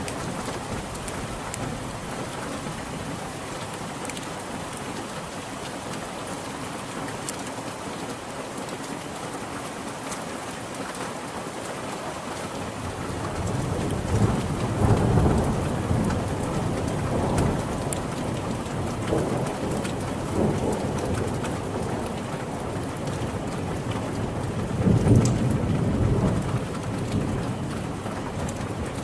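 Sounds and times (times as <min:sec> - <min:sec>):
rain falling: 0:00.0 - 0:29.0
rolling thunder: 0:13.4 - 0:22.2, 0:24.2 - 0:28.7.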